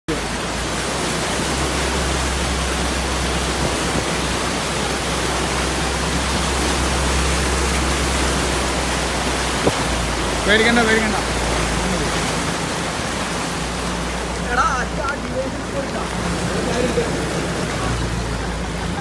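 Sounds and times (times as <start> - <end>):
fast-flowing floodwater rushing: 0.1 - 19.0.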